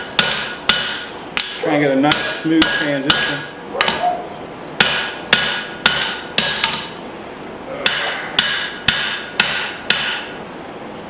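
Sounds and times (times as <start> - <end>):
hammer striking hot metal: 0.0 - 4.0, 4.8 - 7.0, 7.8 - 10.4.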